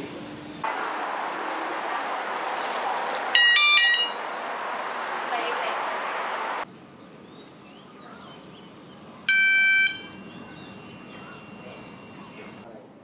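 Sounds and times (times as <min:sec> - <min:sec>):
birds chirping softly: 0:06.6 - 0:12.7.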